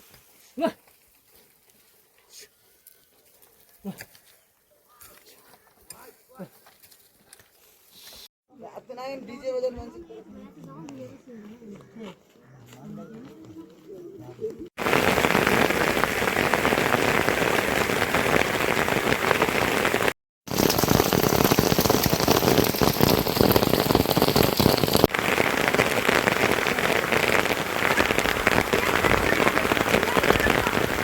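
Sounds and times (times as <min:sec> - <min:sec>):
heavy rain pouring: 0:14.8 - 0:31.0.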